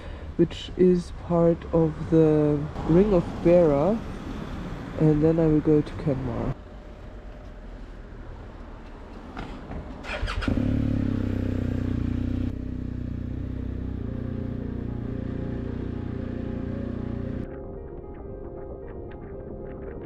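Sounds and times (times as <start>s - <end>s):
motorcycle engine starting and idling: 10.0s - 17.5s.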